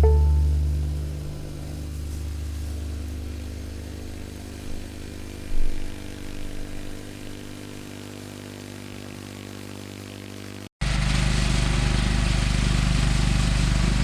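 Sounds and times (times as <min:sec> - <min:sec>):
lawn tractor engine running: 0:00.0 - 0:14.0.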